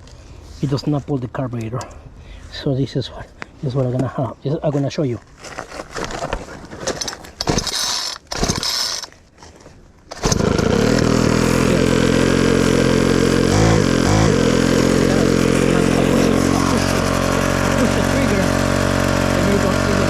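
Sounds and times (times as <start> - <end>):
weed whacker engine idling: 7.5 - 9.1, 10.1 - 20.0.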